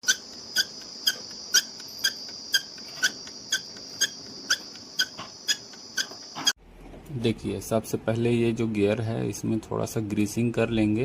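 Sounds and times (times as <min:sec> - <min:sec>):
printer squealing and squeaking: 0:00.0 - 0:06.6.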